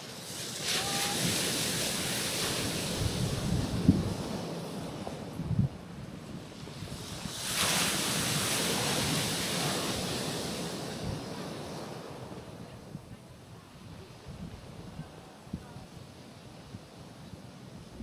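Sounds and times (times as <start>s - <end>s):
waves washing onto rocks: 0.0s - 13.0s
wind rumble on microphone: 0.8s - 18.0s.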